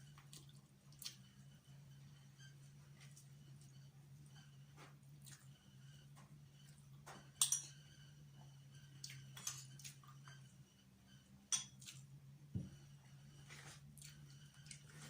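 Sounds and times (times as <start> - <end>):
cutlery clinking on a plate: 7.3 - 7.8, 11.5 - 11.9.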